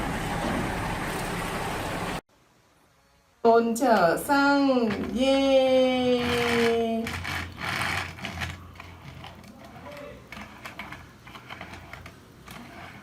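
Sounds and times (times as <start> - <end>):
plastic toy truck clicking: 6.2 - 13.0.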